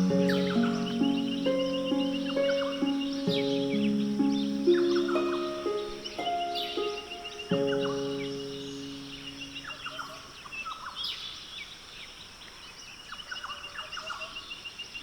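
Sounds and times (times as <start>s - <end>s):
held music chord: 0.0s - 10.1s
fast high bird trill: 0.0s - 10.3s
birds chirping: 0.0s - 15.0s.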